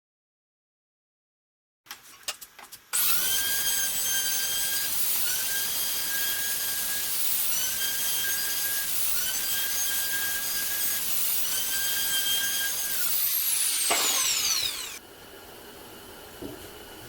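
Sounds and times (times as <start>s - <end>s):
jigsaw motor whine: 3.0s - 15.0s.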